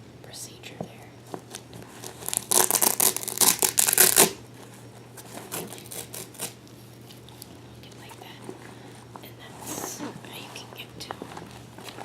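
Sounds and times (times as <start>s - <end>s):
plastic packaging crumpling: 1.4s - 4.4s, 5.3s - 7.4s.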